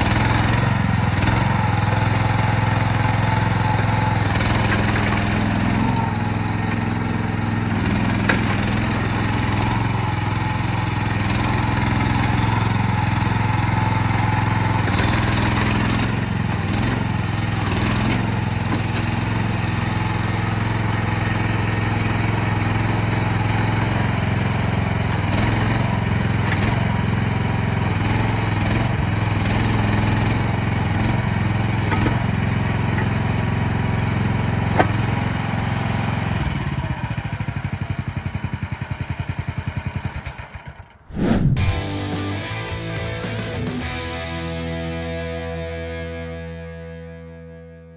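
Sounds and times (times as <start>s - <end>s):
excavator engine running: 0.0s - 35.2s, 36.4s - 45.2s.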